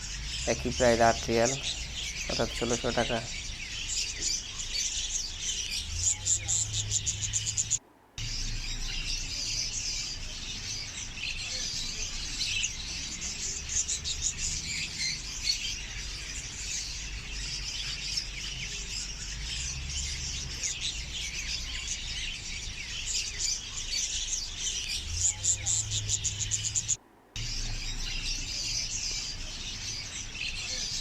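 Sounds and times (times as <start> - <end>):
steady low hum: 0.0 - 14.5, 24.1 - 31.0
small birds chirping: 0.0 - 31.0.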